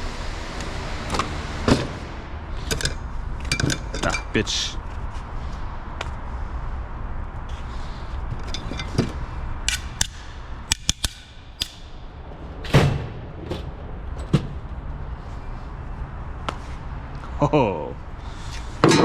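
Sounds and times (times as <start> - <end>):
steady low hum: 0.0 - 19.0
metal knocks and clanks: 12.6 - 14.8.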